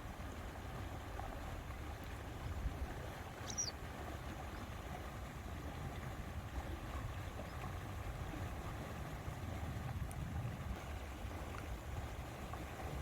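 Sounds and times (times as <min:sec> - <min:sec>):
soft wash of water: 0:00.0 - 0:13.0
wind buffeting microphone: 0:03.9 - 0:13.0.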